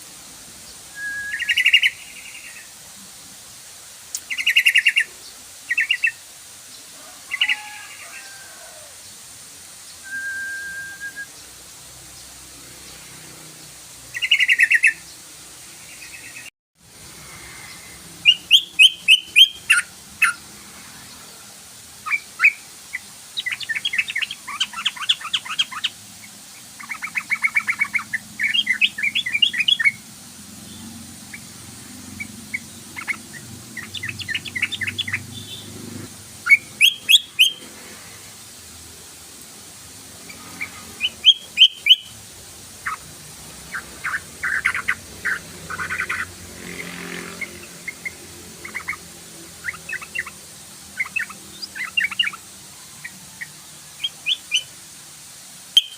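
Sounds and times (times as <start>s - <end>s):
bird chattering calls: 1.3s - 2.7s, 4.2s - 5.1s, 14.1s - 15.0s, 17.4s - 20.4s, 22.0s - 30.0s, 31.3s - 35.8s, 36.4s - 37.7s, 40.2s - 54.7s.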